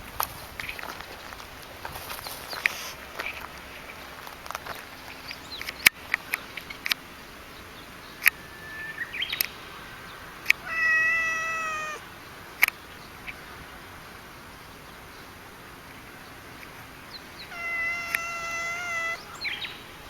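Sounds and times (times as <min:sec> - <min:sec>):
cat meowing: 0:10.6 - 0:12.0, 0:17.5 - 0:19.4.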